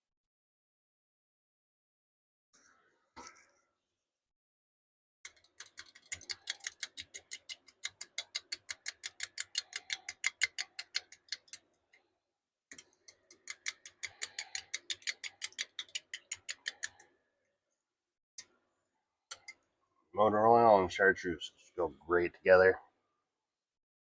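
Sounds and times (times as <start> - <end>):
knife stirring liquid in cup: 5.3 - 11.7, 12.7 - 17.1, 19.3 - 19.6.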